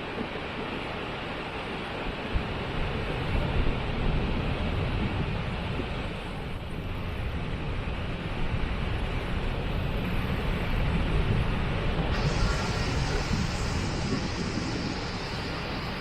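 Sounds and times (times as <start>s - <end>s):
deep rumble: 12.1s - 16.0s
waterfall rushing: 12.1s - 16.0s.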